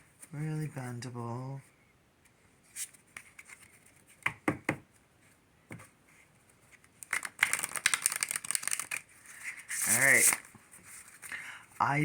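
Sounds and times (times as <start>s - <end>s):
cards being shuffled: 6.7s - 11.3s.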